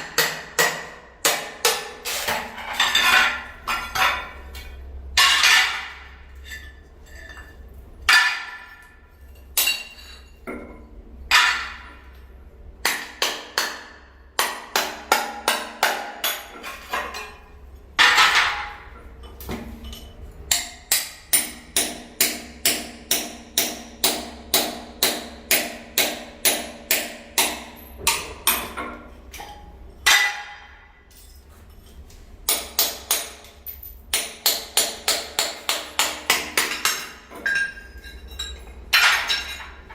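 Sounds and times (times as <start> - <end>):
hammer striking ceramic tile: 38.9 - 39.6.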